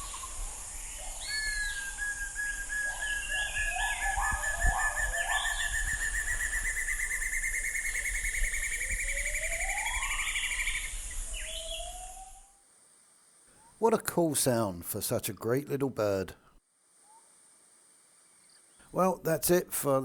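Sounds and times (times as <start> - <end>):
steady high hiss: 0.0 - 4.0, 10.0 - 20.0
other birds calling: 0.0 - 12.4
bird trilling: 1.2 - 12.4.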